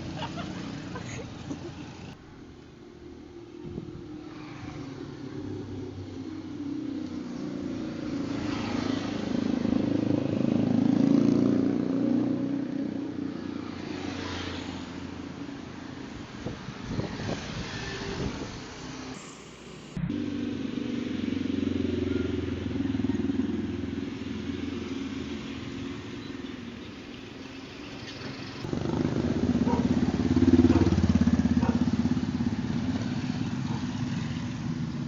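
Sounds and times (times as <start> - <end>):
vehicle engine passing by: 3.7 - 15.4, 16.4 - 35.0.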